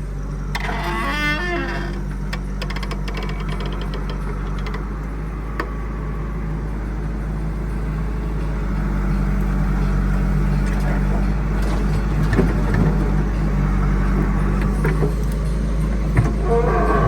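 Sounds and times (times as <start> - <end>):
heavy diesel engine running: 0.0 - 17.0
rattle of clicks: 0.5 - 5.1.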